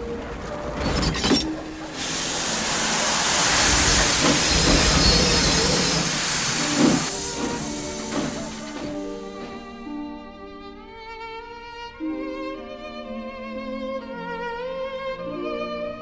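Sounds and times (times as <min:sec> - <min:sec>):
steam locomotive hissing steam: 0:01.3 - 0:10.0.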